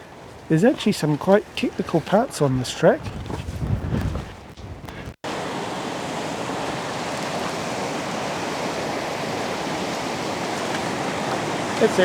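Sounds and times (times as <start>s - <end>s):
faint wind noise: 0.0s - 12.0s
river rushing: 5.2s - 12.0s.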